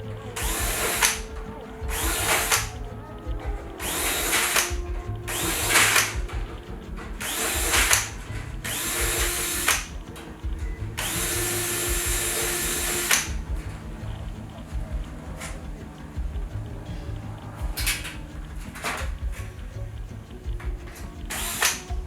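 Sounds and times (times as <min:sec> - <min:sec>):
power drill whining: 0:00.0 - 0:14.5, 0:21.2 - 0:22.0.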